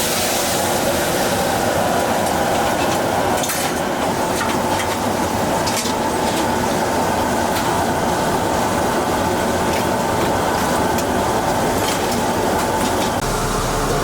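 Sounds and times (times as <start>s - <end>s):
kitchen machinery roaring: 0.0s - 14.0s.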